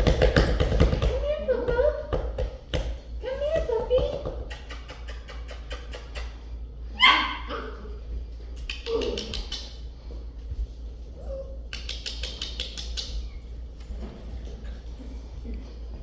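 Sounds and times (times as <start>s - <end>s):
puppy yipping bark: 7.0s - 7.8s.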